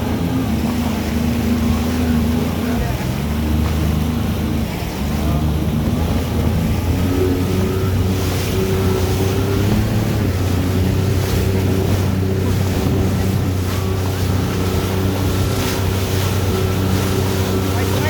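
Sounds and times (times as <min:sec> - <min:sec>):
jet ski engine running: 0:00.0 - 0:18.0
wind blowing on microphone: 0:00.0 - 0:18.0.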